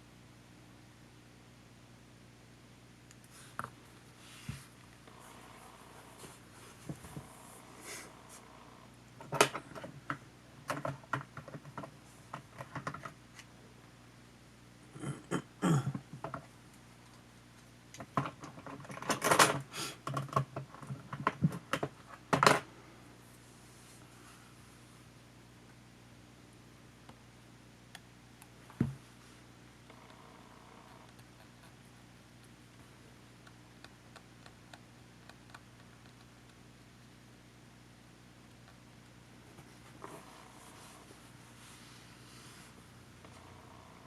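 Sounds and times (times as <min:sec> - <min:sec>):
plastic parts clicking and tapping: 0:09.2 - 0:13.5, 0:17.9 - 0:22.6.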